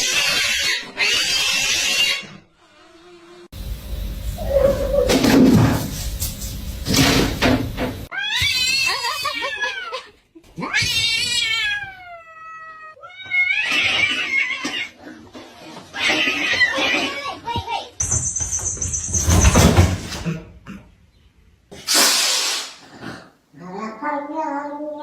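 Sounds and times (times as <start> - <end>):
cat yowling: 4.4 - 5.2.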